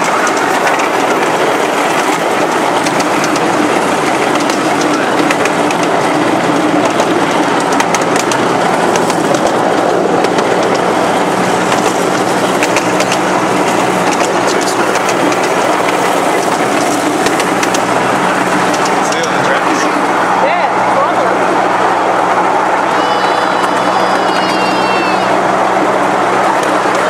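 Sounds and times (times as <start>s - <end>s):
train rumbling on rails: 0.0s - 27.0s
sharp clicks: 11.7s - 17.9s.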